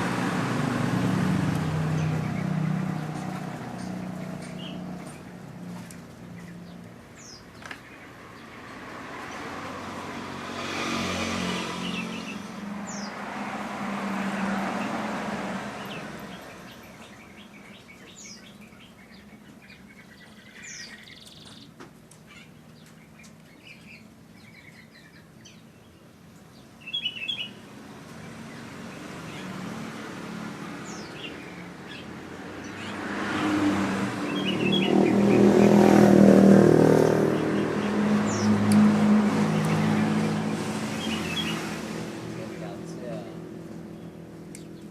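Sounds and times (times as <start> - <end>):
small birds chirping: 0.0 - 44.9
vehicles passing by: 0.0 - 44.9.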